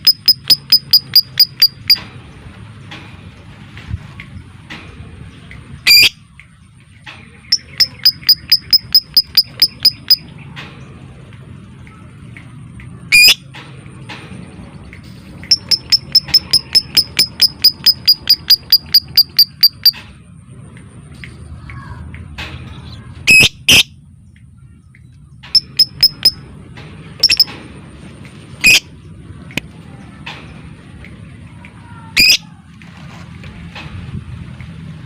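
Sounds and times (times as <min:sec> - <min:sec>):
lovebird chirping: 0:00.0 - 0:02.0, 0:07.5 - 0:10.3, 0:15.5 - 0:20.0, 0:25.5 - 0:26.4, 0:27.2 - 0:27.5.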